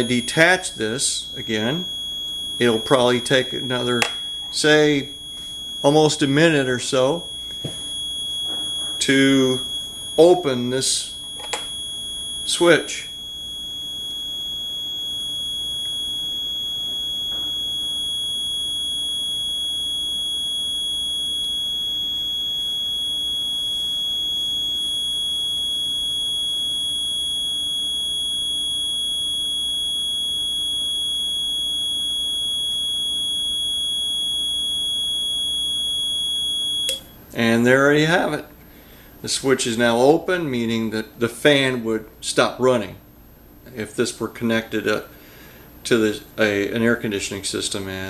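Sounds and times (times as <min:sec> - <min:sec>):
high-pitched electronic buzzer: 0:00.0 - 0:37.2.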